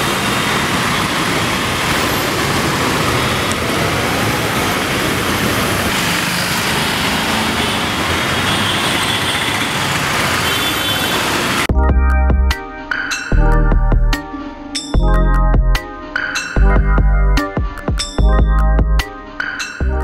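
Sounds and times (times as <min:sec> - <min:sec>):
road traffic hiss: 0:00.0 - 0:11.7.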